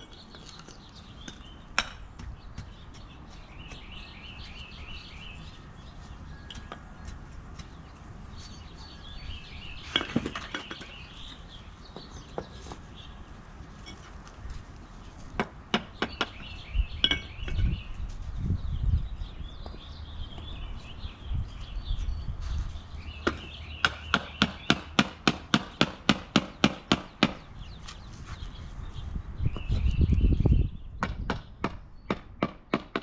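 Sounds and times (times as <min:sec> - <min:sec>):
taps on concrete pavers: 0:00.0 - 0:09.0, 0:09.7 - 0:13.1, 0:13.7 - 0:17.9, 0:19.5 - 0:21.0, 0:23.1 - 0:28.6, 0:30.9 - 0:33.0
birds singing: 0:00.0 - 0:33.0.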